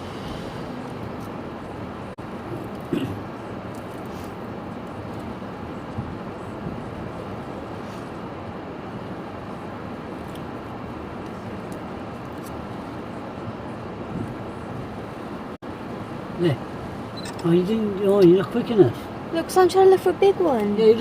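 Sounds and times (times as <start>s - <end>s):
storm wind on microphone: 4.7s - 11.2s, 11.9s - 15.6s.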